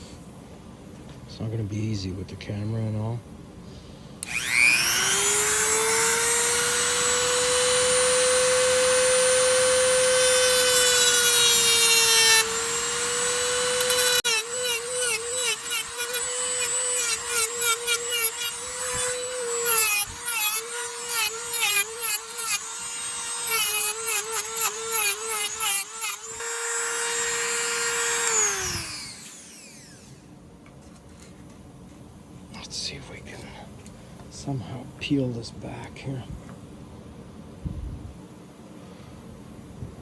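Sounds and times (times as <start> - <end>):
rotary tool grinding metal: 4.2 - 30.2
rotary tool whining: 4.2 - 30.3.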